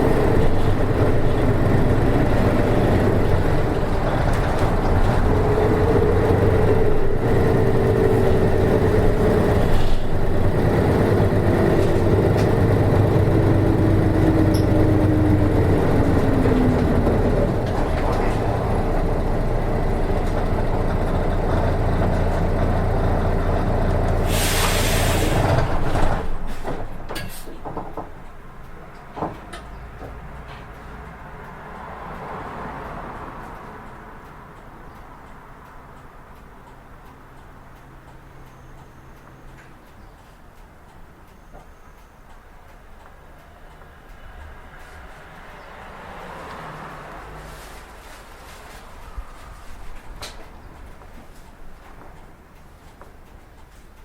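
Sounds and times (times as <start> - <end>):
bus diesel engine whining: 0.0 - 54.0
air brakes hissing: 9.5 - 10.2, 24.2 - 25.7, 26.4 - 27.6.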